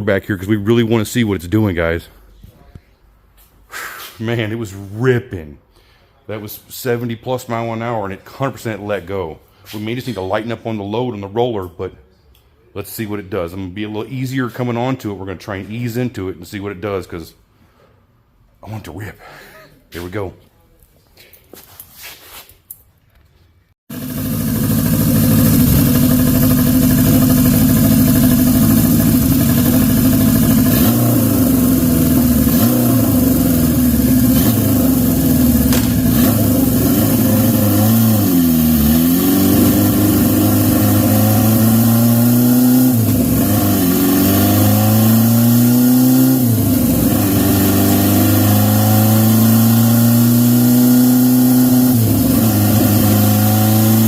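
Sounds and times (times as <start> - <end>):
motorcycle engine running hard: 23.9 - 54.0.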